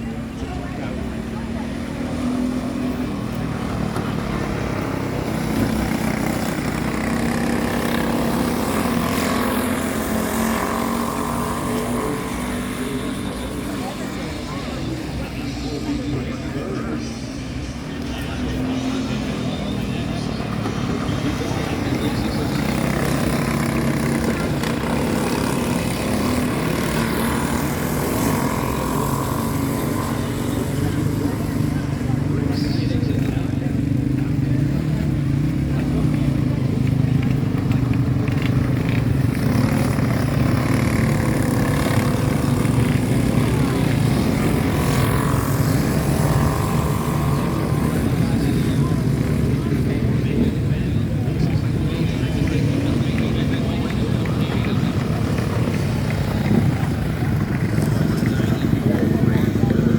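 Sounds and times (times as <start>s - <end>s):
kart engines racing: 0.0s - 59.9s.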